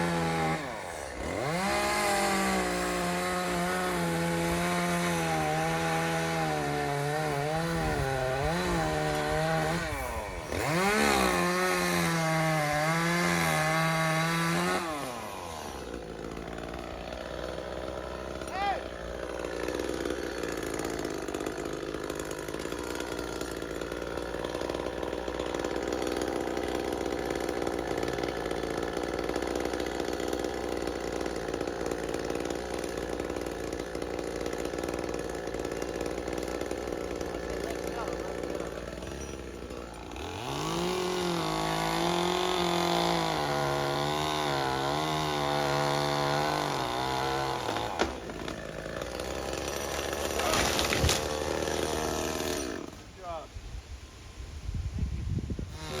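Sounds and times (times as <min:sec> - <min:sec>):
chainsaw cutting wood: 0:00.0 - 0:53.5, 0:55.4 - 0:56.0.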